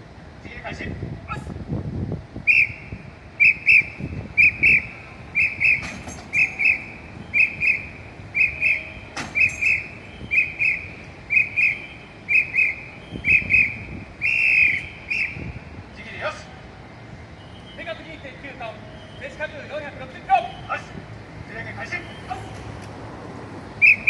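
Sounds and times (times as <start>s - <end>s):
whistle double blasts: 2.4s - 15.8s, 17.4s - 19.4s, 23.8s - 24.0s.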